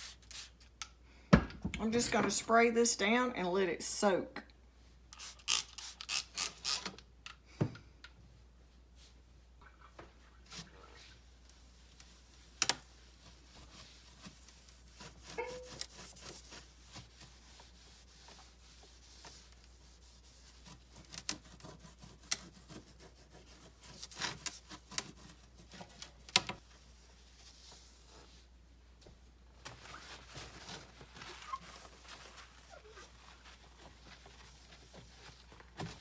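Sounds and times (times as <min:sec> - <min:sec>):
light rubbing and scraping: 0:09.0 - 0:28.5.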